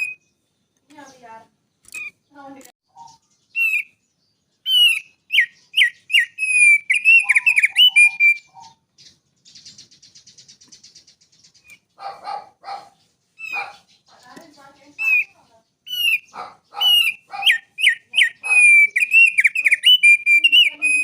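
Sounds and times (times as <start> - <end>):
songbird whistled notes: 0.0 - 0.4, 3.0 - 11.9, 14.8 - 21.0
soft chattering trill: 13.4 - 21.0.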